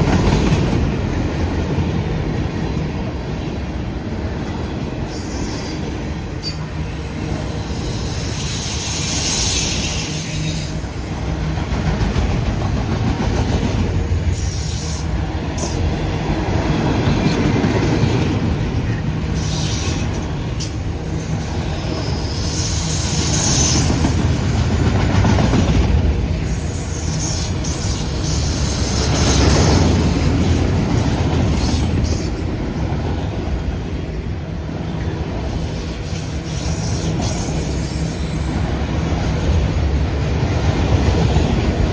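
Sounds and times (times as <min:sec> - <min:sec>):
train wheels rumbling on rail: 0:00.0 - 0:41.9
high-pitched wheel squeal: 0:05.0 - 0:06.7.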